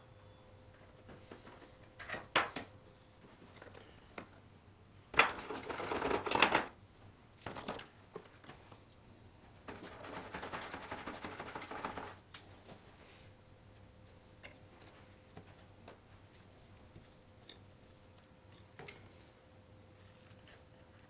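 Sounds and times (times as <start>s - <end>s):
rapid mechanical clattering: 5.2s - 6.7s, 9.7s - 12.2s.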